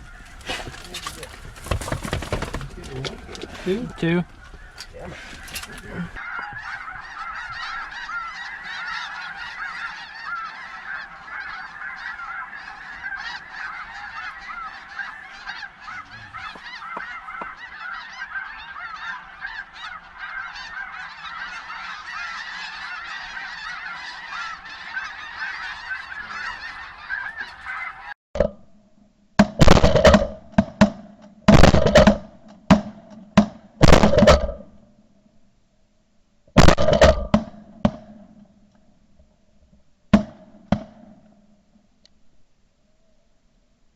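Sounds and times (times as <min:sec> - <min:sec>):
flock of geese honking: 0:00.0 - 0:28.2.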